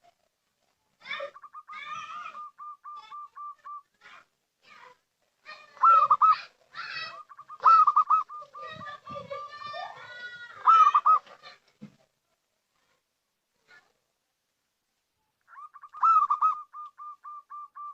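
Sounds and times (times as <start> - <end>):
dove cooing staccato notes: 1.0 - 3.9, 5.7 - 9.6, 10.6 - 11.4, 15.5 - 17.9
rough-toned bird calls: 5.8 - 8.9, 15.5 - 17.9.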